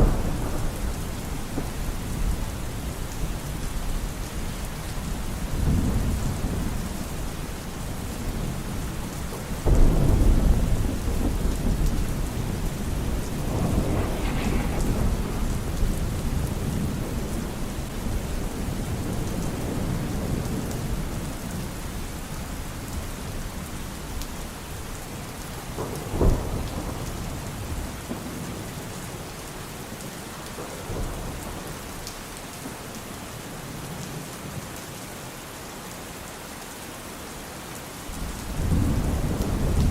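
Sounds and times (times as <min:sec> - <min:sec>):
rolling thunder: 0:00.0 - 0:07.3, 0:09.6 - 0:21.6, 0:25.6 - 0:28.9, 0:38.2 - 0:39.9
rain hiss: 0:00.0 - 0:39.9.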